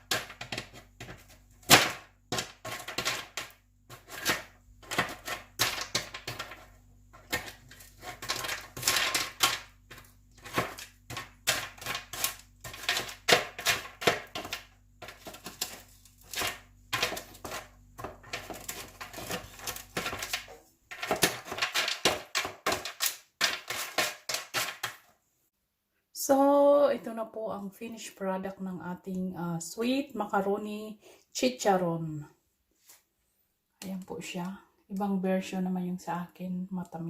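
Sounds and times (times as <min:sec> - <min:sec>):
brittle fried pieces crackling: 0:00.0 - 0:25.0.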